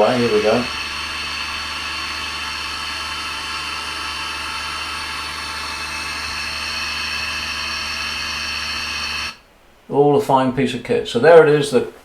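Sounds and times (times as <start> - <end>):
electric motor humming: 0.0 - 9.4.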